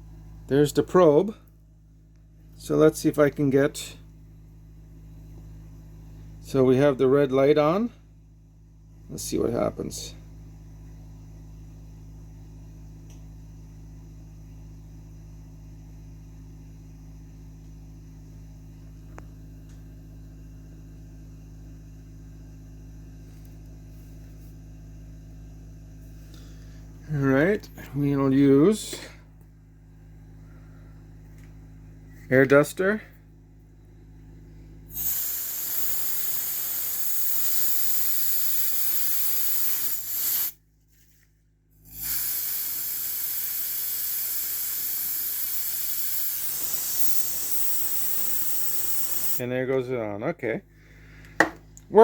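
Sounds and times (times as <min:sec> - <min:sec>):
steady low hum: 0:00.0 - 0:52.0
compressed air can hissing: 0:34.9 - 0:40.6, 0:41.8 - 0:49.4.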